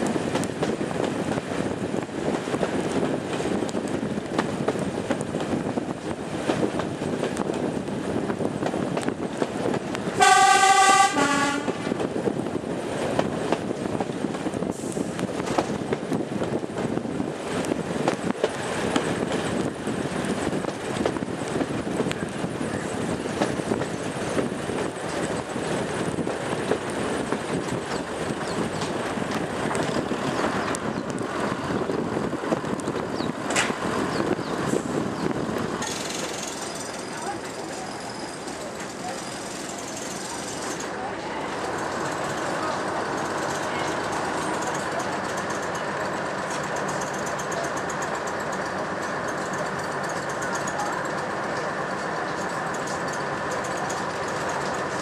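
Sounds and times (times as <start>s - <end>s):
train engine and wheels rumbling: 0.0s - 55.0s
two-tone train horn: 10.2s - 11.9s.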